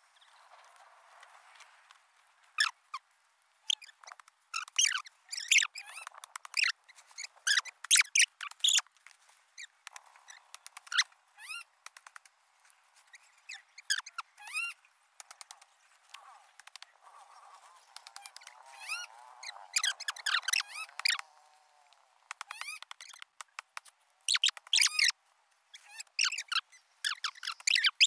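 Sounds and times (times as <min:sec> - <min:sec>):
small birds chirping: 0:00.0 - 0:00.9, 0:02.3 - 0:28.0
sharp clicks: 0:03.8 - 0:06.7, 0:09.8 - 0:11.2, 0:11.8 - 0:12.4, 0:15.2 - 0:16.9, 0:19.8 - 0:25.1.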